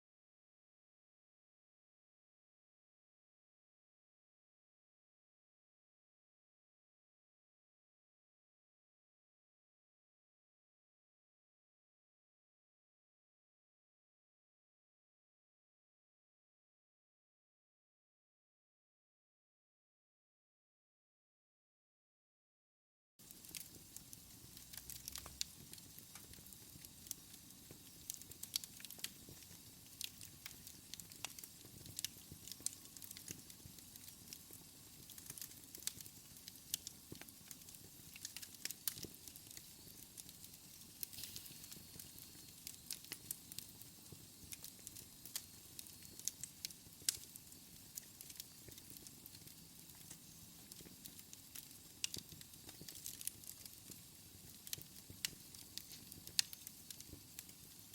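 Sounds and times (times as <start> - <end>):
faint steady hiss: 23.2 - 57.9
wood fire crackling: 23.2 - 57.9.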